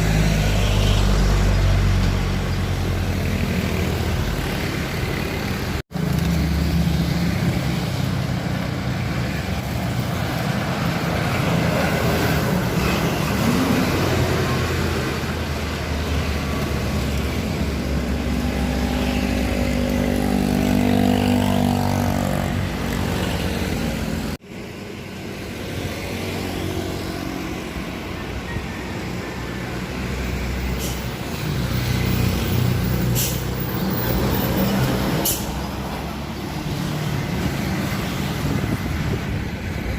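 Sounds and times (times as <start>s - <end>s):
short air hisses: 33.1s - 33.5s.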